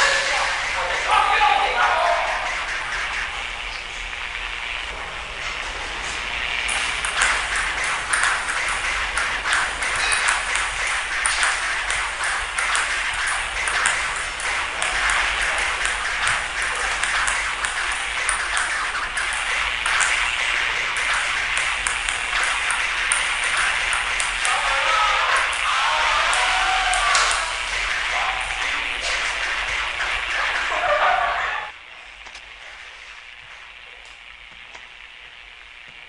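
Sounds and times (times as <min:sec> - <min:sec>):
steady hiss: 0:00.0 - 0:36.0
table tennis ball clicks: 0:06.7 - 0:24.5.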